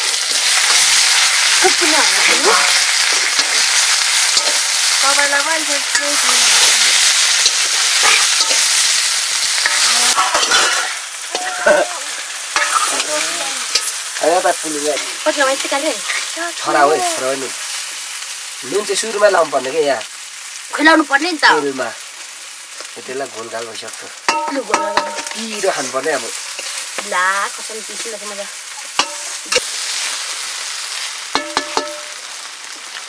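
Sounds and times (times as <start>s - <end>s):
potatoes sizzling in oil: 0.0s - 33.0s
spoon clicking against pan: 31.4s - 32.1s.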